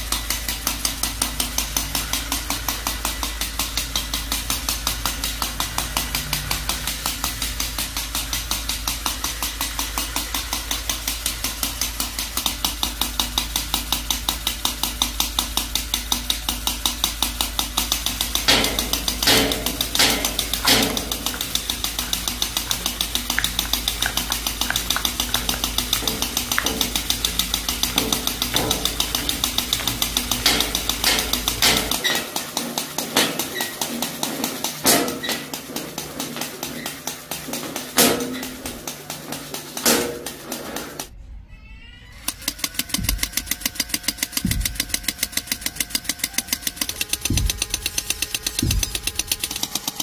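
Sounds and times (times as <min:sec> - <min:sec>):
machine knocking rapidly: 0:00.0 - 0:41.1, 0:42.2 - 0:50.0
loud metallic clanks: 0:17.0 - 0:41.1.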